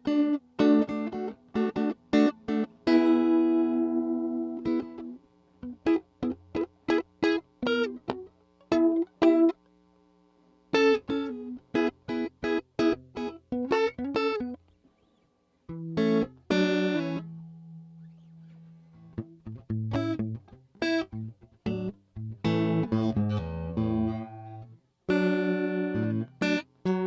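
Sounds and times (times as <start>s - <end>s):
flanged electric guitar: 10.8s - 27.0s.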